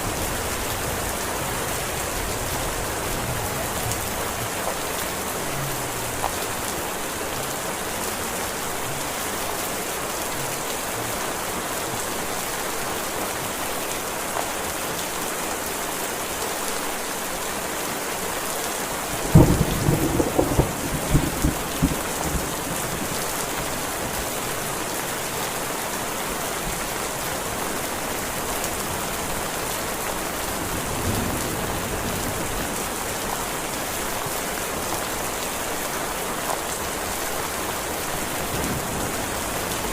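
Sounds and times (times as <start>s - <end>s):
thunder clap rumbling: 19.3s - 23.0s.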